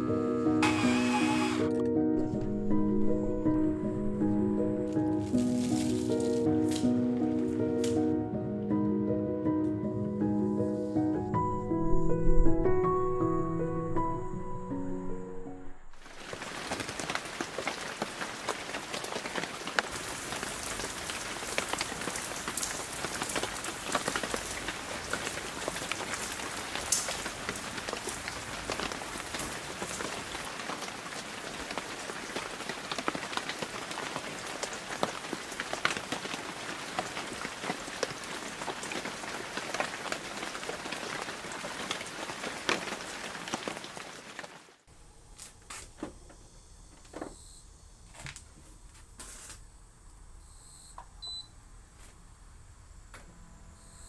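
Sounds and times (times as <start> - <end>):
rain on a hard surface: 5.2 - 6.5, 16.0 - 44.9.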